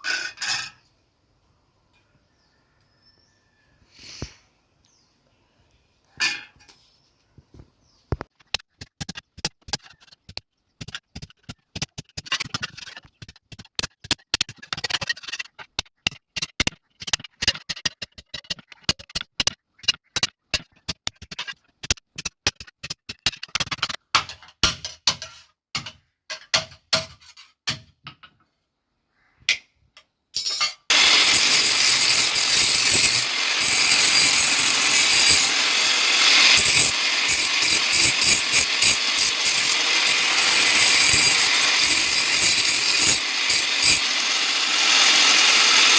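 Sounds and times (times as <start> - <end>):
electric power tool running: 30.9 - 45.9.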